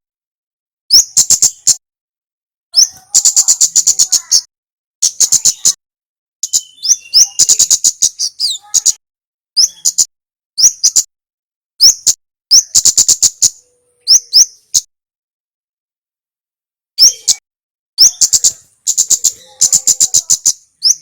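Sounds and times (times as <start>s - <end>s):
songbird calling: 0.9s - 1.8s, 2.8s - 5.8s, 6.4s - 9.0s, 9.6s - 11.1s, 11.8s - 14.9s, 17.0s - 17.4s, 18.0s - 21.0s.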